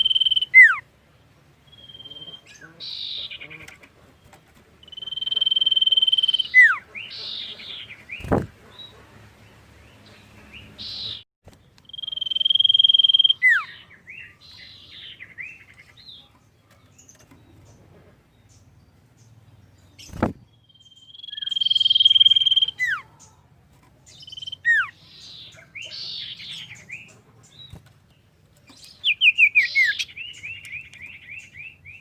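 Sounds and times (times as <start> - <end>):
bird whistling and chattering: 0.0 - 0.8, 1.7 - 3.7, 4.8 - 8.5, 11.8 - 15.6, 21.0 - 23.1, 24.2 - 27.1, 29.0 - 32.0.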